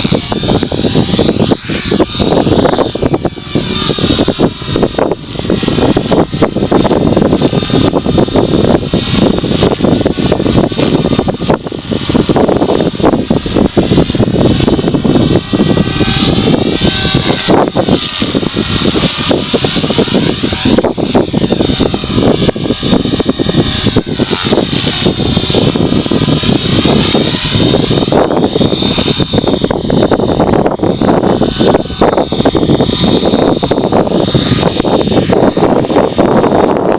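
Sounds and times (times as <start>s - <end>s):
radio-controlled helicopter whine: 0.0s - 36.9s
wind buffeting microphone: 0.0s - 36.9s.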